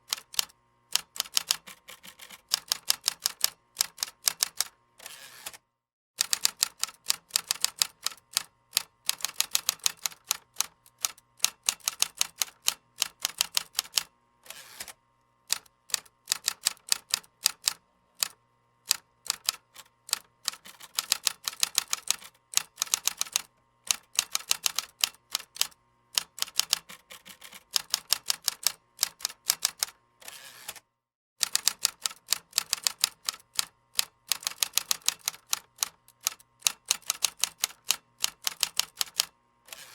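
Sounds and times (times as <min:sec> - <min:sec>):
computer keyboard typing: 0:00.1 - 0:04.7, 0:06.2 - 0:14.1, 0:15.5 - 0:30.0, 0:31.4 - 0:39.3.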